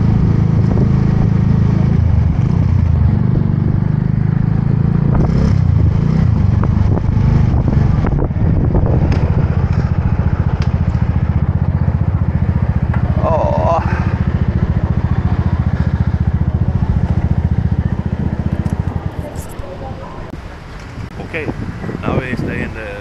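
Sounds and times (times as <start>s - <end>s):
motorbike engine running: 0.0s - 20.2s
engine clatters: 0.0s - 21.2s.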